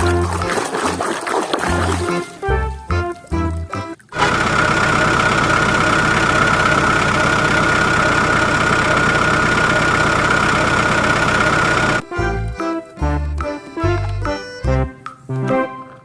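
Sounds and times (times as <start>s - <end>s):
music: 0.0s - 4.2s, 12.0s - 16.0s
motor whining: 4.2s - 12.4s.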